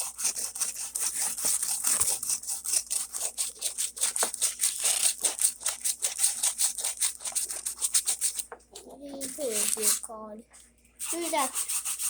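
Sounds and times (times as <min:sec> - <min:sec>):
sandpaper scratching on putty: 0:09.2 - 0:10.0, 0:11.0 - 0:12.0.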